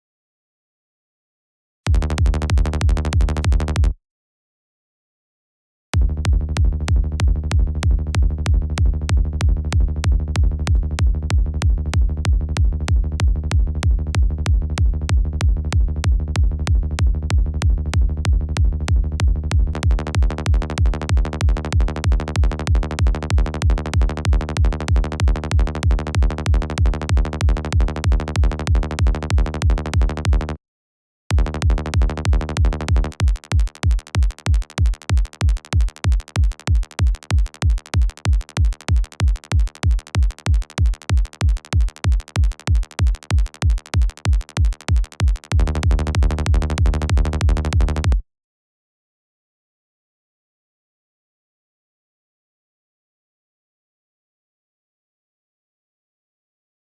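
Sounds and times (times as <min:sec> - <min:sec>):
electronic kick drum: 0:01.9 - 0:04.0, 0:06.0 - 0:30.5, 0:31.3 - 0:48.2
synth bass: 0:01.9 - 0:04.0, 0:06.0 - 0:30.6, 0:31.3 - 0:48.2.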